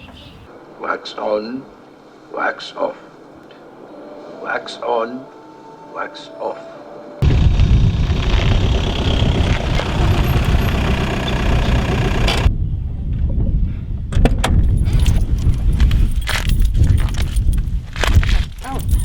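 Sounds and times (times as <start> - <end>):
wind buffeting microphone: 7.2 - 19.0
sharp clicks and rattles: 7.9 - 12.5.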